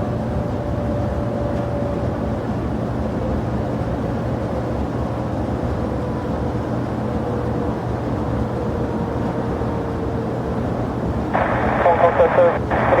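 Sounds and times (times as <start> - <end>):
jet engines running: 10.6 - 13.0
faint falling whine: 11.4 - 13.0.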